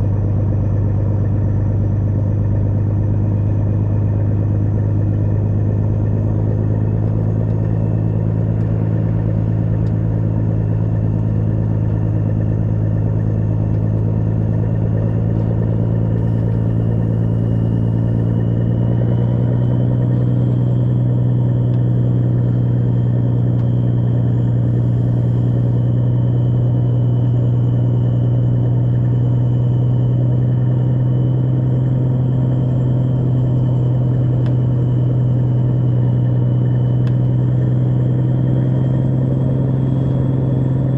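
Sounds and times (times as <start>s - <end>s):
large truck engine running: 0.0s - 40.9s.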